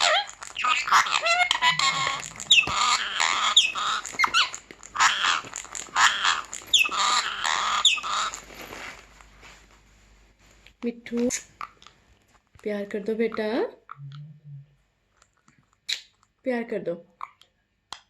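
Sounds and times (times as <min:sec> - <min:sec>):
parrot squawking: 0:00.0 - 0:08.8.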